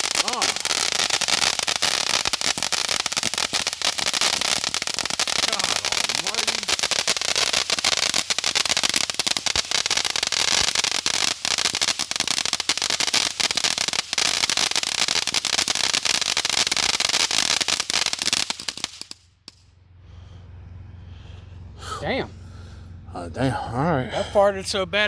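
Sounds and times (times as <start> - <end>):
firework crackling: 0.0 - 19.7.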